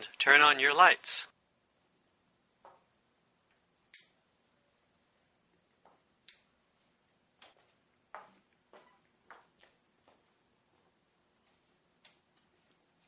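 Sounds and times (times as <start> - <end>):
faint clicks and knocks: 7.4 - 12.6.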